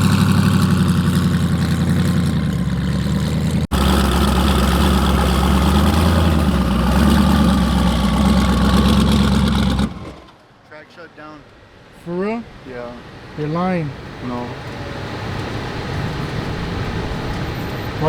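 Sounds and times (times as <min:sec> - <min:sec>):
car engine idling lumpily: 0:00.0 - 0:10.8.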